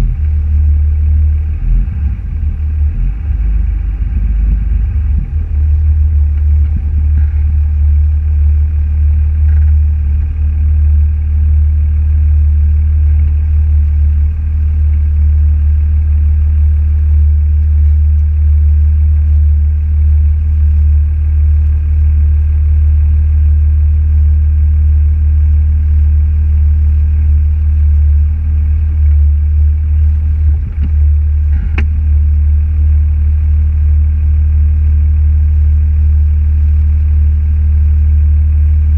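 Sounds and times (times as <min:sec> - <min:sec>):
car engine and road noise: 0:00.0 - 0:18.3, 0:27.0 - 0:34.2.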